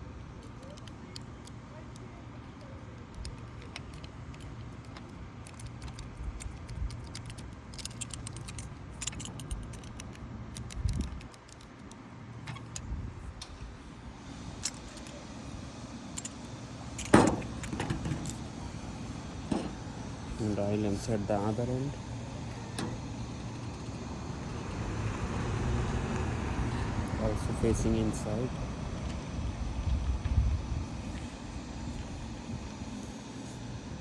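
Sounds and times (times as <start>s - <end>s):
wiper blade clicks and rattles: 0.4s - 13.6s
steady low rumble: 1.2s - 34.0s.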